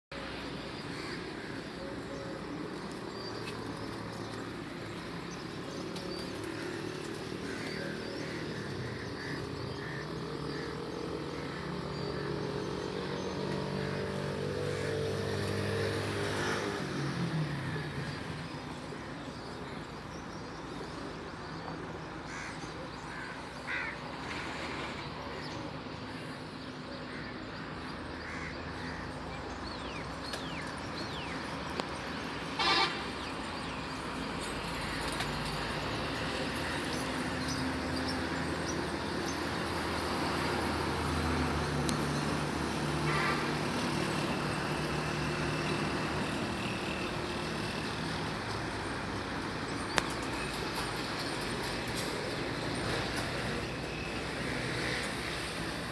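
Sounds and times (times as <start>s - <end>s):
motor vehicle passing by: 2.1s - 19.1s, 30.7s - 55.9s.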